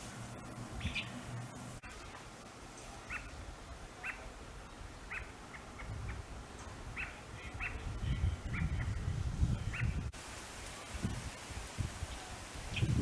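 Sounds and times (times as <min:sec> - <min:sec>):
robins chirping: 0:00.8 - 0:02.2, 0:02.9 - 0:03.4, 0:04.0 - 0:06.3, 0:06.9 - 0:10.0.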